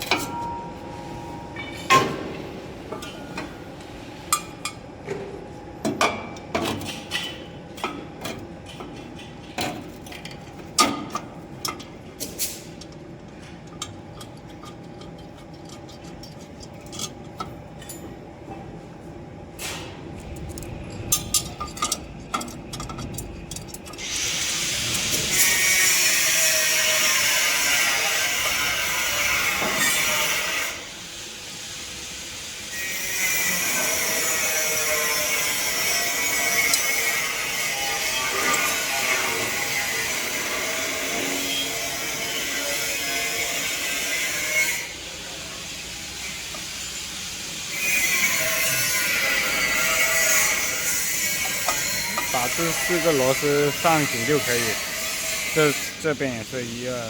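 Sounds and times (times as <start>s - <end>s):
power tool running: 52.0s - 57.0s.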